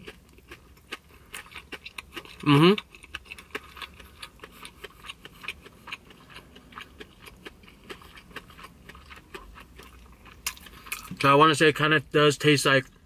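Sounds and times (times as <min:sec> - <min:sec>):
chewing crispy fried chicken: 0:00.0 - 0:11.8.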